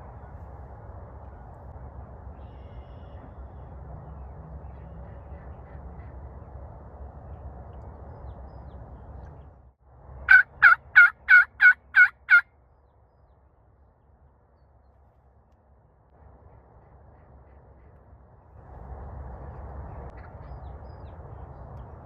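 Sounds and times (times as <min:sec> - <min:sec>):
turkey yelps: 0:10.3 - 0:12.4.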